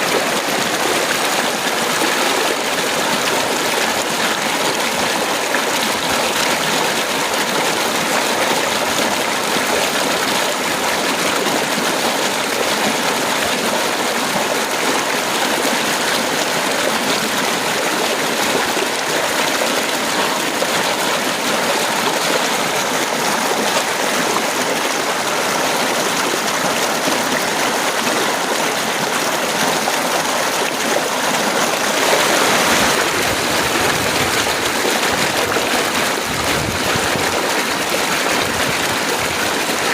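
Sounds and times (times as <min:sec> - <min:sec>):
heavy rain pouring: 0:16.5 - 0:39.9.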